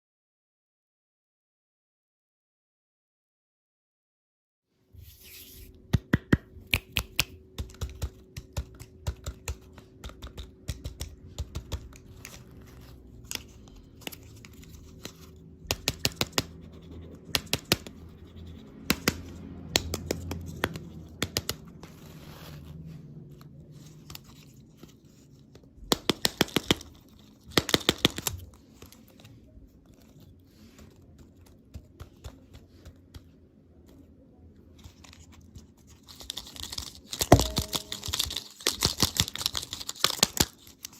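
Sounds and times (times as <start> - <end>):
plastic packaging clicks and crinkling: 34.8 - 40.9.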